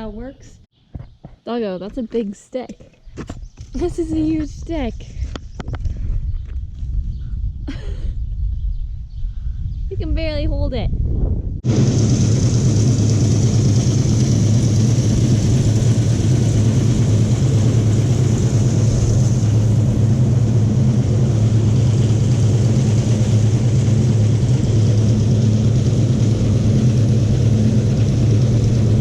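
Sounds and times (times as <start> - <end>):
engine drone with hiss: 11.6 - 29.0.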